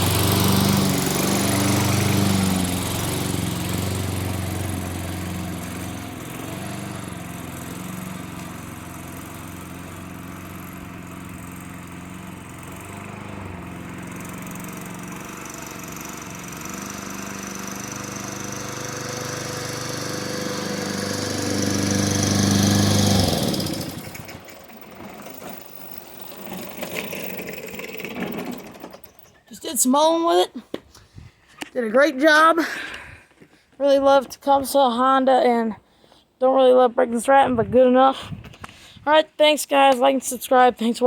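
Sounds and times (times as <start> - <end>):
lawn mower engine running: 0.0 - 30.3.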